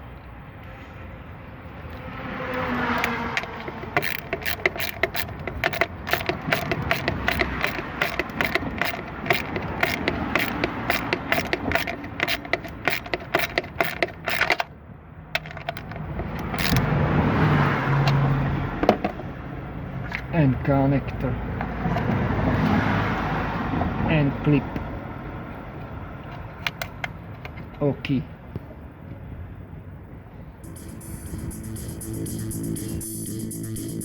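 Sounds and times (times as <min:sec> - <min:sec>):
vehicle passing: 0:00.6 - 0:14.6, 0:15.3 - 0:26.6, 0:30.6 - 0:34.0
ratchet wrench clicking: 0:02.6 - 0:14.7, 0:15.4 - 0:16.9.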